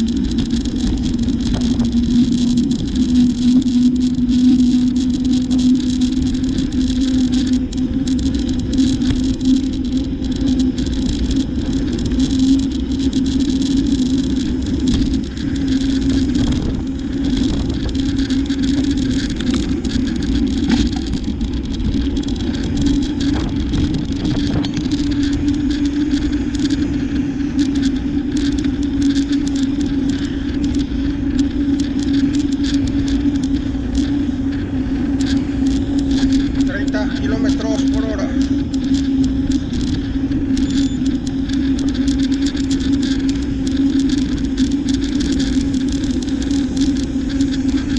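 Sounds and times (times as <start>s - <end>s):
bicycle riding noise: 0.0s - 47.9s
small rattling clicks: 0.0s - 47.9s.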